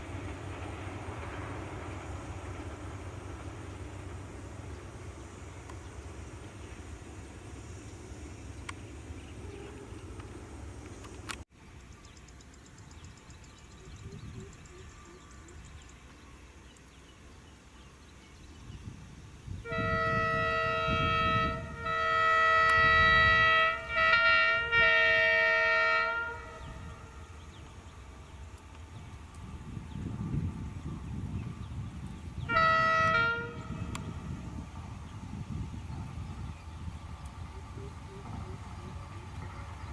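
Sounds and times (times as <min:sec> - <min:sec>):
low train rumble: 0:00.0 - 0:39.9
locomotive horn blasts: 0:09.3 - 0:10.1, 0:19.6 - 0:27.6, 0:32.4 - 0:34.4.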